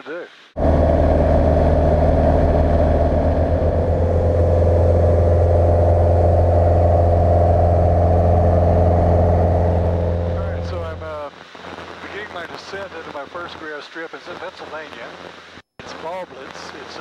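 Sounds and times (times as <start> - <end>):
propeller plane engine drone: 0.6 - 11.2.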